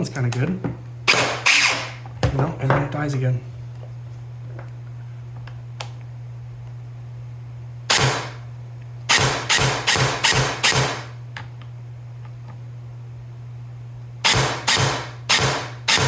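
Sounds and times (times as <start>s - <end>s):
steady low hum: 0.0s - 16.0s
airsoft gun shots: 7.9s - 8.4s, 9.1s - 11.1s, 14.2s - 16.0s.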